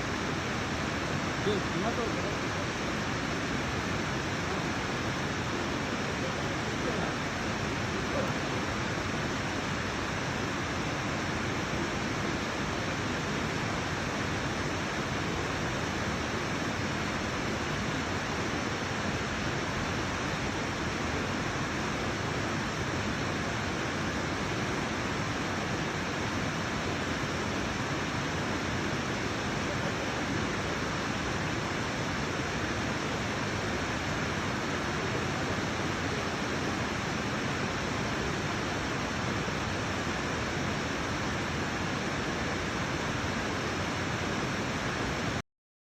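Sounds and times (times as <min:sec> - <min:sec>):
waterfall roaring: 0:00.0 - 0:45.4.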